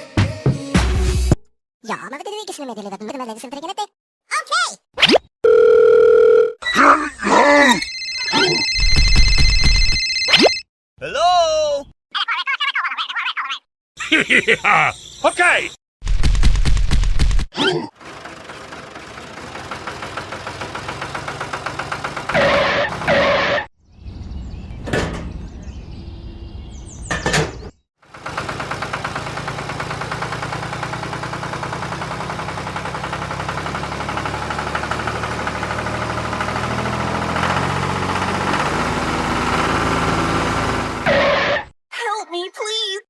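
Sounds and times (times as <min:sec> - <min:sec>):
small tractor engine running: 0:18.0 - 0:23.4, 0:28.0 - 0:41.2.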